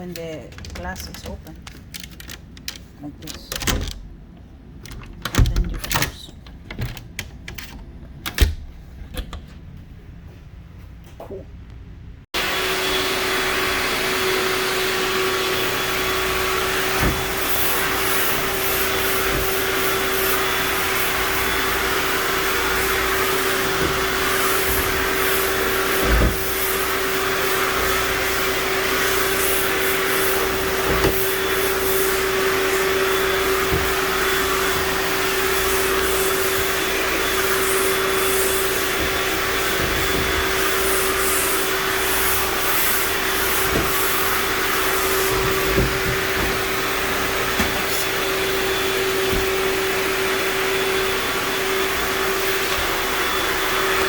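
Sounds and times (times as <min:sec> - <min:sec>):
vacuum cleaner running: 0:12.3 - 0:54.0
vacuum knocking against surfaces: 0:15.2 - 0:50.2.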